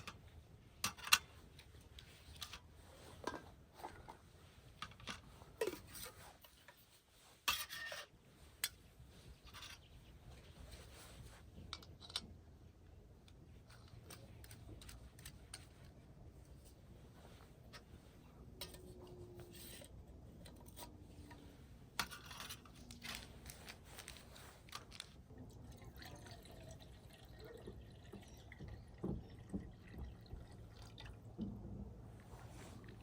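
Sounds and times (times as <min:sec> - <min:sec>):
liquid pouring and dripping: 0:25.3 - 0:31.4.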